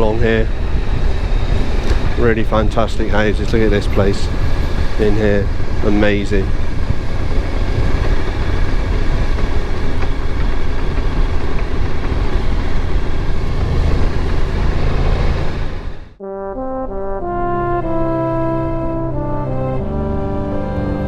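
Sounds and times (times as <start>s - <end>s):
wind rush: 0.0s - 16.2s
motorcycle engine drone: 0.0s - 21.0s
slow music with held notes: 16.2s - 21.0s.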